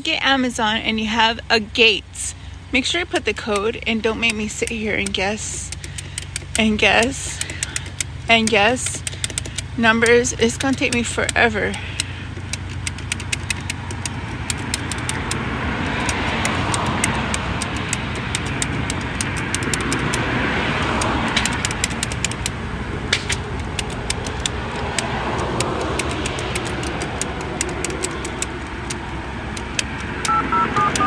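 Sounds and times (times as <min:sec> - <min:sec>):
engine idling: 0:00.0 - 0:31.0
traffic noise: 0:00.0 - 0:31.0
two-tone keypad beeps: 0:30.3 - 0:31.0.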